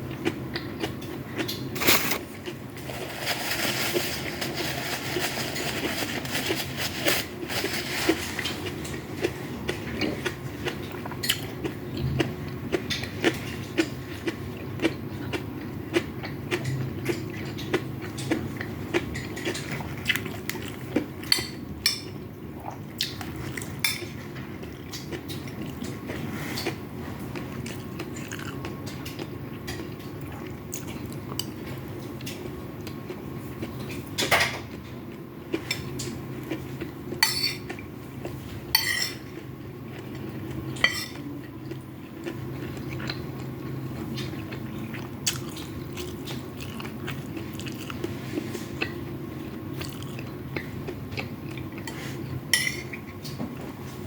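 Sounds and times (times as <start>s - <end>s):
spoon clinking against bowl: 37.2s - 37.6s, 38.8s - 39.2s.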